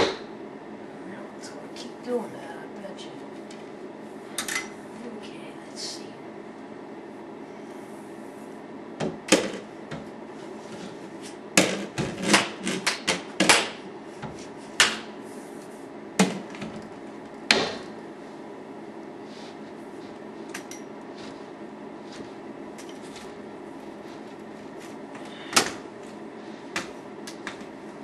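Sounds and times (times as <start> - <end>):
broom brushing scrapes: 19.2 - 20.5, 21.1 - 26.7.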